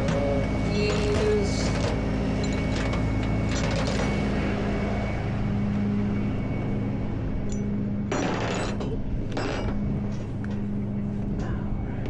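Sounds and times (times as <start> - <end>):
low engine hum: 0.0 - 8.1.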